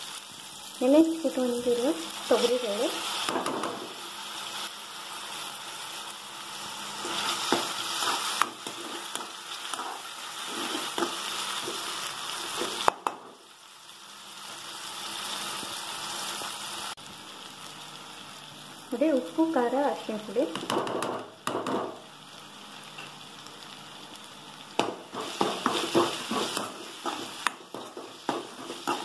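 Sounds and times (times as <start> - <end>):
food sizzling in a pan: 0.0 - 29.0
metal ladle scraping a pan: 8.0 - 11.8.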